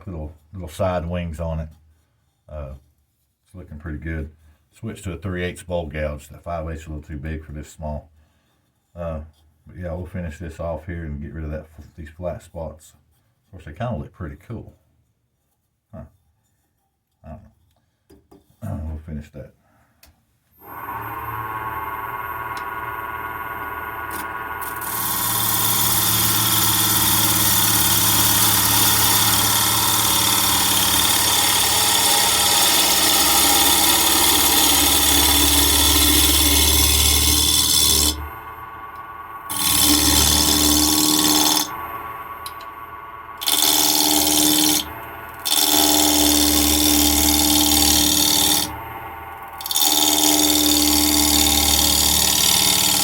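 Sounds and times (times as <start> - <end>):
wood lathe spinning: 20.5 - 53.0
gouge cutting spinning wood: 20.6 - 53.0.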